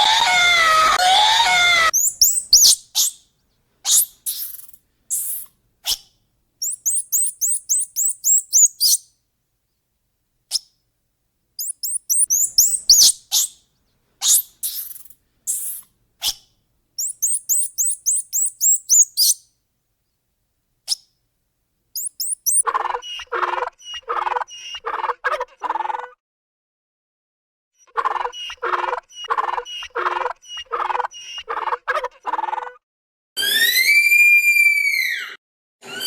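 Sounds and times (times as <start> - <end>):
repeated animal calls: 0.0 - 3.2, 3.9 - 9.0, 11.6 - 13.6, 17.0 - 19.4, 22.0 - 26.0, 27.8 - 32.6
high falling bird chirps: 0.1 - 3.2, 3.9 - 5.5, 6.6 - 9.1, 11.6 - 13.6, 14.2 - 15.8, 17.0 - 19.4, 22.0 - 22.6.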